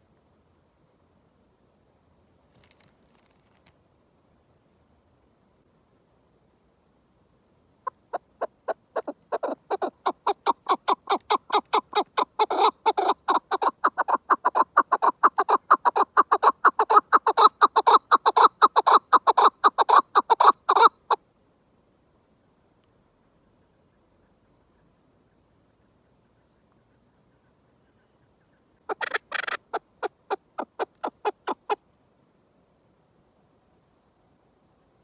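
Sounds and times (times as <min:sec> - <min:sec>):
partridge clucking call: 0:07.8 - 0:21.2, 0:28.4 - 0:31.8.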